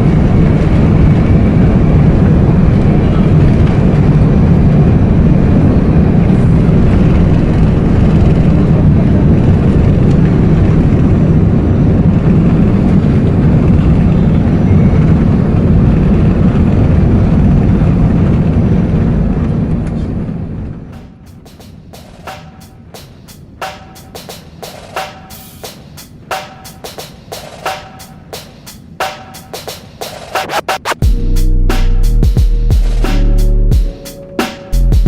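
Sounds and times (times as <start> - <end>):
airplane cabin engine rumble: 0.0 - 27.0.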